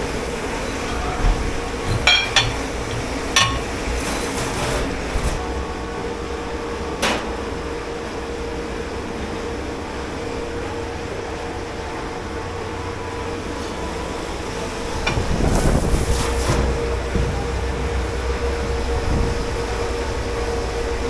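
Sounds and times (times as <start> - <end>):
steady machine hum: 0.0 - 21.0
sharp clank: 1.8 - 4.7.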